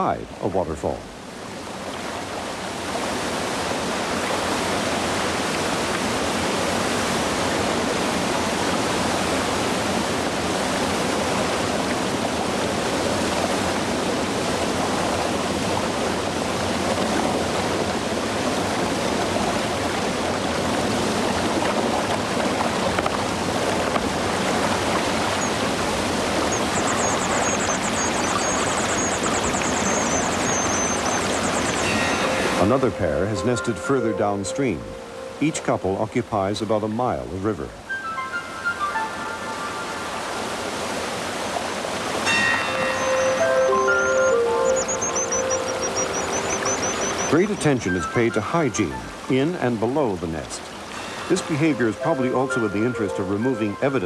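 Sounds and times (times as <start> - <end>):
waterfall rushing: 1.1 - 36.6, 37.7 - 54.0
high fast-chattering bird song: 26.4 - 32.8, 42.7 - 47.7.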